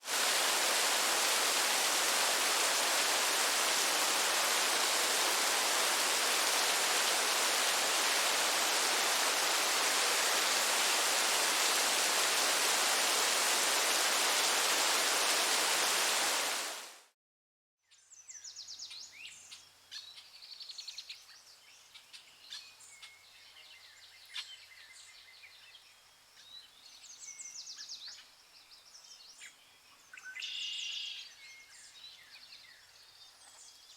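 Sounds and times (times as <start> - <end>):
loud rushing hiss: 0.0 - 17.0.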